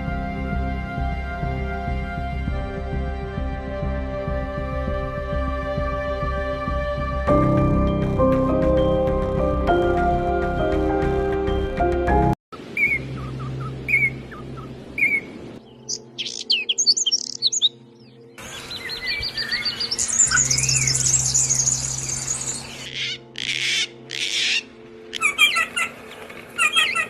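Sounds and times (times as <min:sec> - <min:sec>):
small birds chirping and trilling: 0:12.7 - 0:27.0.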